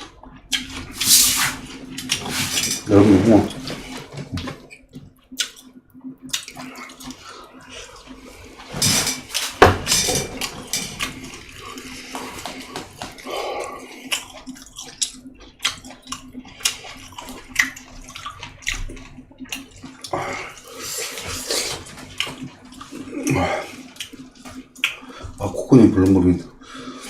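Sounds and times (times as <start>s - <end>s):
wet chewing mouth noises: 0.3s - 1.2s, 4.7s - 8.3s, 10.4s - 25.3s.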